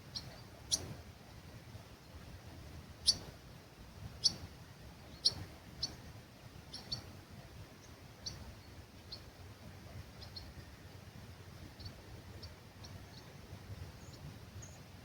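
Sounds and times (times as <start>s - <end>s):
low rumble of breeze: 0.0s - 15.0s
small bird chirping: 0.1s - 0.9s, 3.0s - 3.3s, 4.2s - 4.5s, 5.1s - 6.0s, 6.7s - 7.1s, 7.8s - 9.3s, 10.2s - 10.6s, 14.0s - 14.8s.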